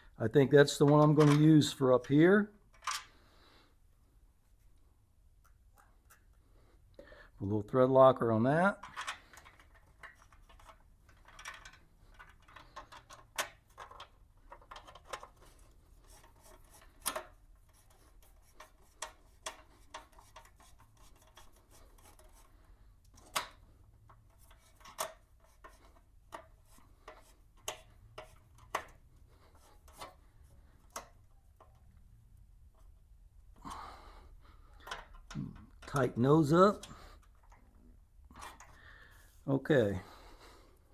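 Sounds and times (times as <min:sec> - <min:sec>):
light clicks of metal parts: 0:00.7 - 0:03.2, 0:08.7 - 0:32.1, 0:34.7 - 0:37.8.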